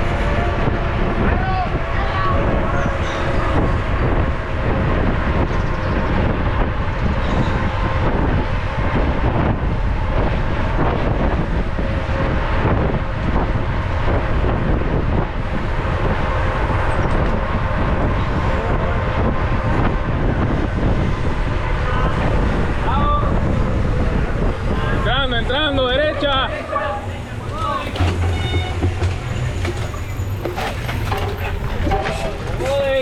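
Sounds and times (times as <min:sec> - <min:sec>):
wind rushing on microphone: 0:00.0 - 0:33.0
bike rolling over trail: 0:26.4 - 0:33.0.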